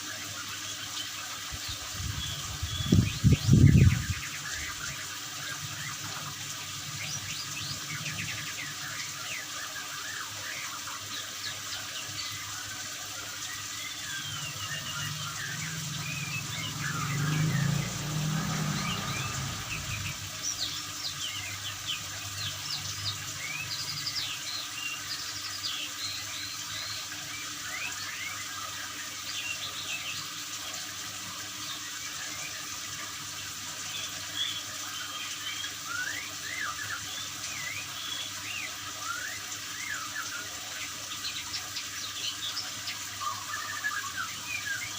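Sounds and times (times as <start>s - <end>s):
water running: 0.0s - 44.9s
bird chirps and whistles: 34.4s - 40.4s.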